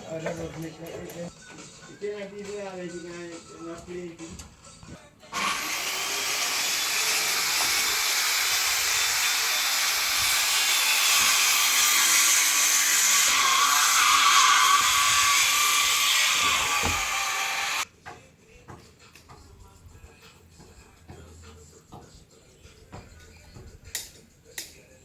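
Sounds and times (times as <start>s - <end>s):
power tool whining on wood: 5.3s - 17.8s.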